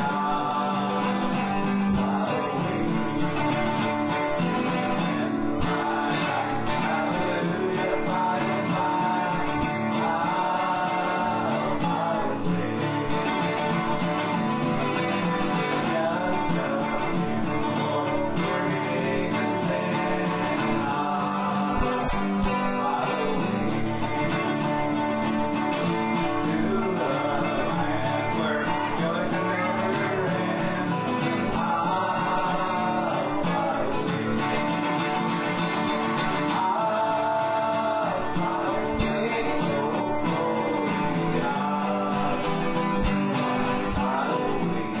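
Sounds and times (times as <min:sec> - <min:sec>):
acoustic guitar: 0:00.0 - 0:45.0
person singing: 0:00.0 - 0:45.0.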